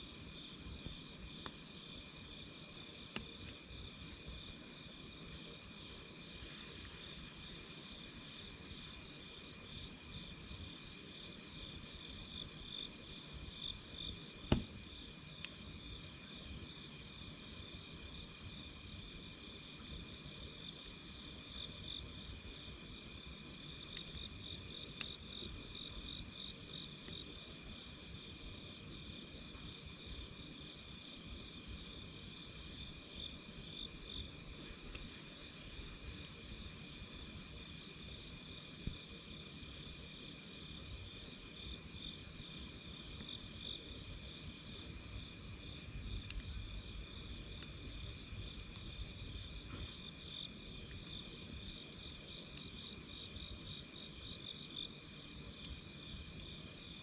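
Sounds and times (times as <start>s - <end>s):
campfire crackling: 0.0s - 57.0s
insects chirping: 0.1s - 57.0s
sharp pop: 14.5s - 14.8s.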